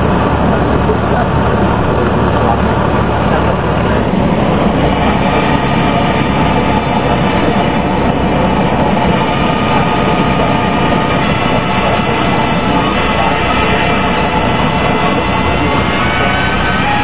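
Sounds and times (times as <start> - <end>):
aircraft engine and propeller droning: 0.0 - 17.0
cabin noise roar: 0.0 - 17.0.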